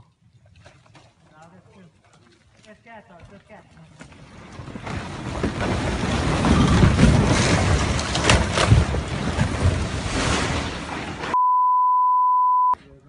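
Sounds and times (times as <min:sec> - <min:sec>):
rock cracks and knocks: 0:04.1 - 0:10.0
rockfall roar: 0:04.5 - 0:11.4.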